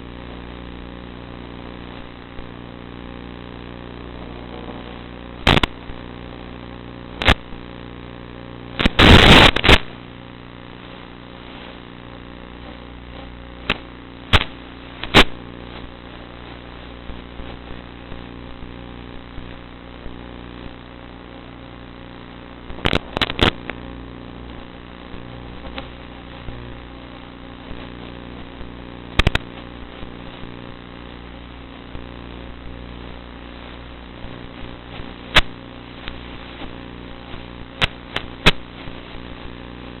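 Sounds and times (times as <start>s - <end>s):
sharp crackling pops: 0.0s - 40.0s.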